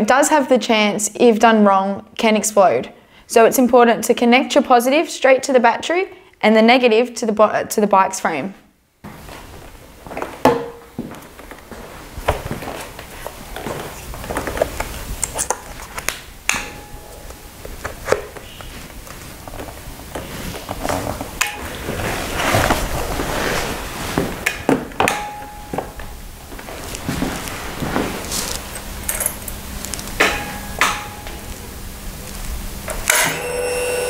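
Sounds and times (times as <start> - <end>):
short tones: 33.1 - 34.0.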